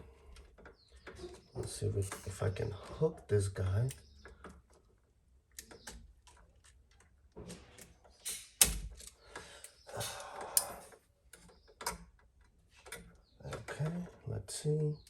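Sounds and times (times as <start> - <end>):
hand tools clicking and scraping on wire: 0.0 - 15.0.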